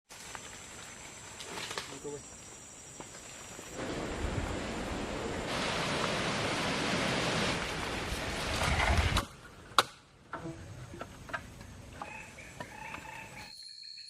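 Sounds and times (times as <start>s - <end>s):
strong wind through trees: 3.6s - 9.3s.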